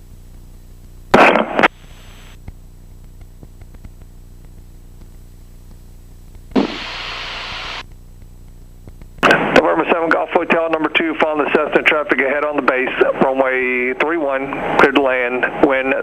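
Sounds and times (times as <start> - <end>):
faint aircraft engine drone: 0.0 - 16.0
open radio channel hiss: 0.0 - 16.0
radio tower call: 1.1 - 2.4, 6.5 - 7.8, 9.2 - 16.0
radio transmission noise burst: 1.1 - 2.4, 6.5 - 7.8, 9.2 - 16.0.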